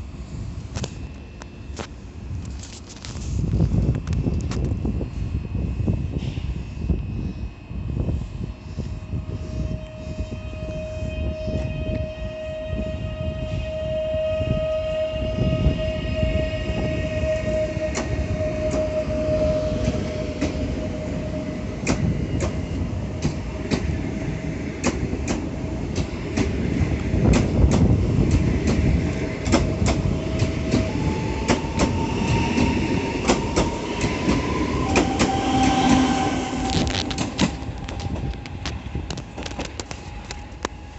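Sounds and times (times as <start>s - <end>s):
train rumbling along track: 0.0s - 40.9s
electric whine rising in pitch: 9.1s - 22.9s, 29.0s - 40.8s.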